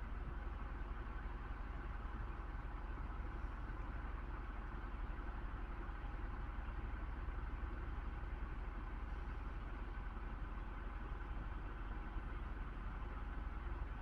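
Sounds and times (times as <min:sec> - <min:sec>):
low rumbling hum: 0:00.0 - 0:01.2.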